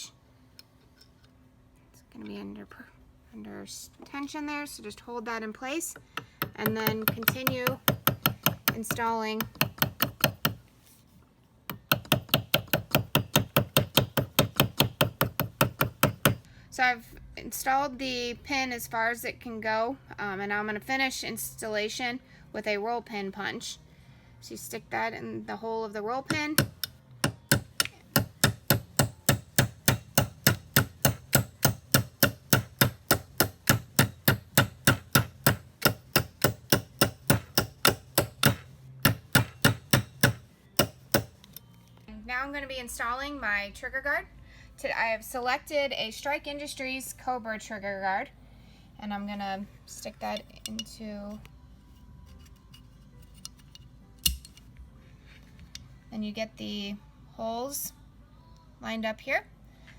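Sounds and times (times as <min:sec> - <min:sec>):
hammer tapping a pin punch: 0:06.0 - 0:10.6, 0:11.7 - 0:16.5, 0:26.3 - 0:41.4.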